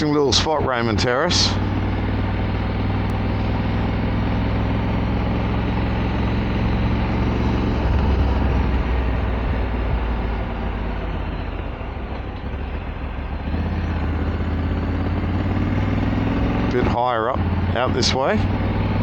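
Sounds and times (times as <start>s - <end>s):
motorcycle engine running: 0.0s - 19.0s
road and wind noise: 0.0s - 19.0s.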